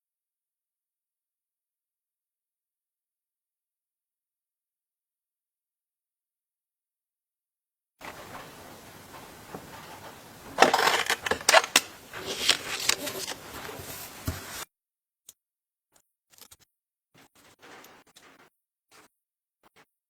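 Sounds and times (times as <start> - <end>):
hard objects clattering: 8.0 - 14.6.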